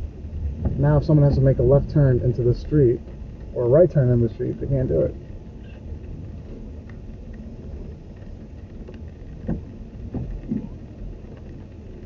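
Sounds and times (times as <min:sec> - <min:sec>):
vehicle rumble inside car: 0:00.0 - 0:12.0.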